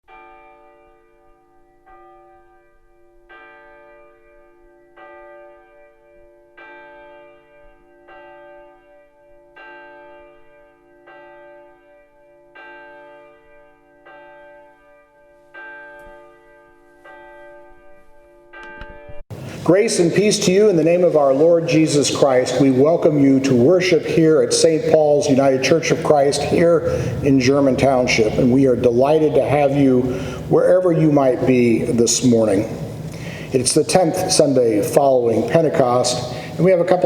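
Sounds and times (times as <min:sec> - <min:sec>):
bell tolling: 0:12.6 - 0:37.0.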